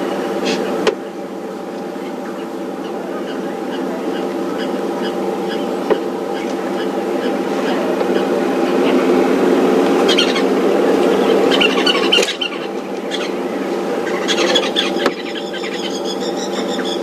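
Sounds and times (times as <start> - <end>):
vehicle engine running: 0.0 - 17.0
high-pitched squeals and chirps: 10.0 - 10.6, 14.0 - 17.0.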